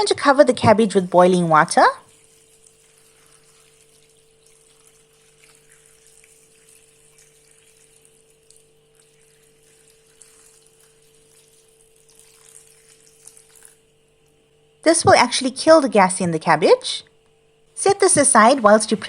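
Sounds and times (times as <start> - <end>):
water pouring over cabbage: 2.0 - 14.4.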